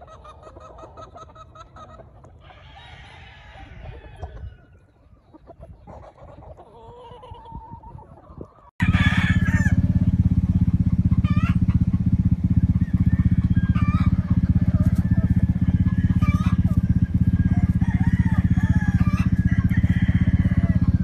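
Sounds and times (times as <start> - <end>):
roosters crowing: 0.0 - 5.0, 5.9 - 21.0
chickens clucking: 0.0 - 21.0
low engine hum: 8.8 - 21.0.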